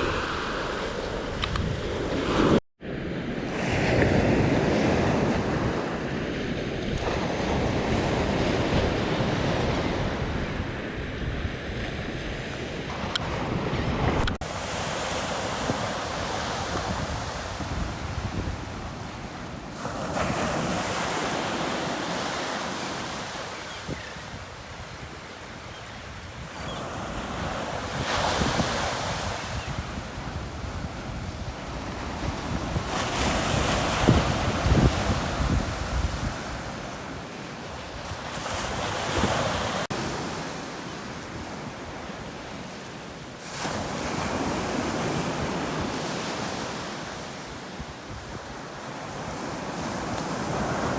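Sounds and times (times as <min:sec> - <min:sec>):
wind buffeting microphone: 0:00.0 - 0:39.8
waves breaking on a beach: 0:00.0 - 0:50.9.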